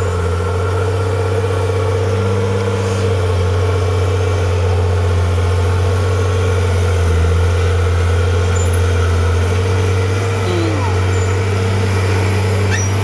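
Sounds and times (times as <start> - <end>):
heavy machine engine droning: 0.0 - 13.0.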